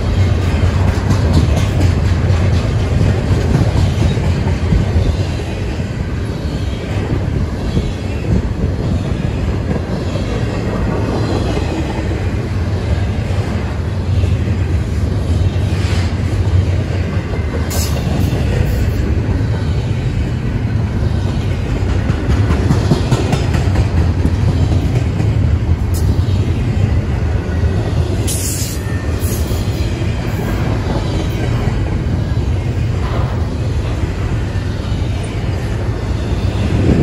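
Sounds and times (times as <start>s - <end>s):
freight train wheels rumbling: 0.0s - 37.0s.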